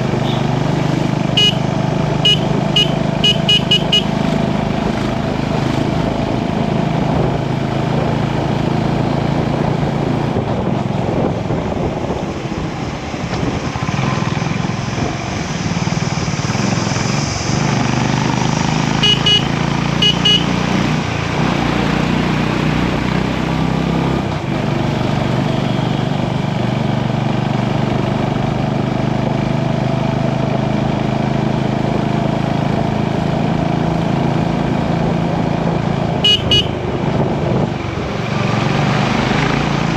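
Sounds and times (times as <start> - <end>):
motorcycle engine running: 0.0 - 12.0, 18.7 - 21.6, 26.6 - 39.9
road and wind noise: 0.0 - 39.9
short high beeps: 2.3 - 4.1.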